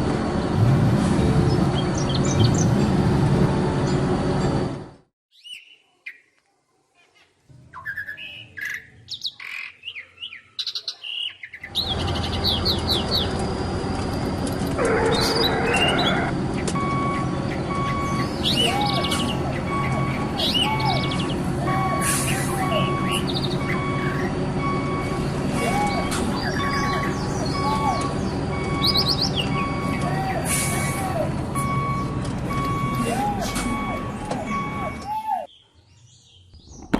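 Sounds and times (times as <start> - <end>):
birds chirping and calling: 7.2 - 13.5, 14.6 - 36.9.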